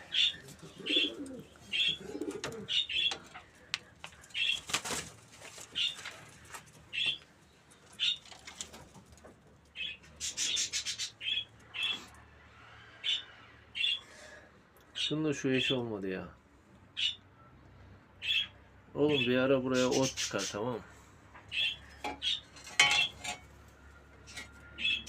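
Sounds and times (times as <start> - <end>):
pigeons cooing: 0.0 - 7.2, 9.8 - 12.1
pigeons chirping: 0.0 - 12.1, 12.9 - 15.8, 16.9 - 17.5, 18.2 - 20.8, 21.4 - 23.4, 24.3 - 25.0.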